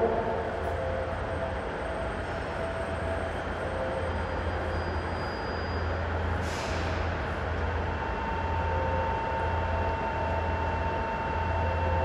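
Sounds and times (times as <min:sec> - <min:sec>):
train equipment humming: 0:00.0 - 0:04.5
air brake hiss: 0:06.3 - 0:07.2.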